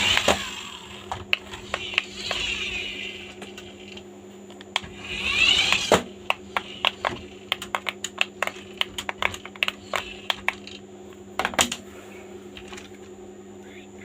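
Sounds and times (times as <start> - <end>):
steady low hum: 0.0 - 14.0
small plastic parts clicking: 4.6 - 10.8.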